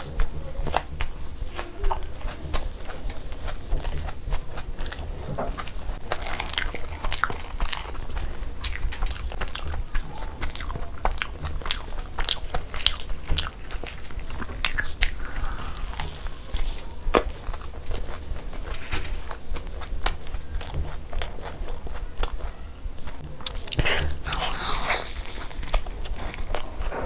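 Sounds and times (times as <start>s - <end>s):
person chewing and biting food: 0.0s - 27.0s.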